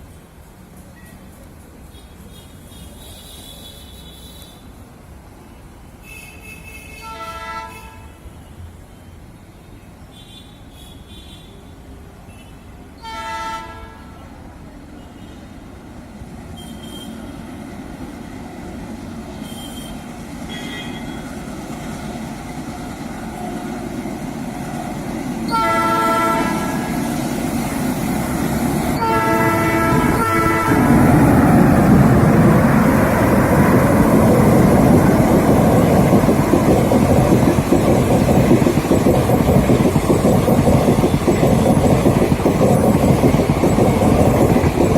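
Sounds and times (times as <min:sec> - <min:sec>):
train horn blasts: 0:06.1 - 0:08.2, 0:13.0 - 0:14.3, 0:25.5 - 0:26.9, 0:29.0 - 0:31.1
train rumbling: 0:15.6 - 0:44.9.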